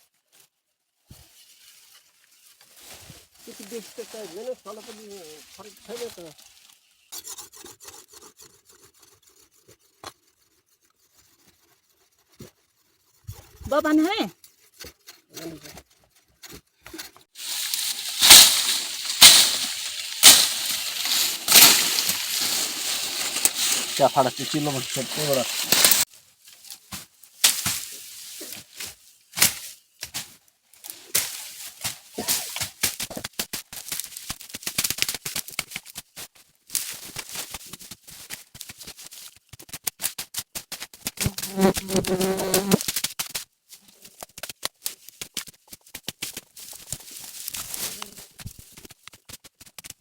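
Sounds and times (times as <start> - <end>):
rustle of cut leaves: 0.0 - 7.1, 17.4 - 49.3
blade chopping vegetation: 17.4 - 26.0, 27.4 - 27.9
insect buzzing: 17.5 - 26.0, 41.2 - 42.8.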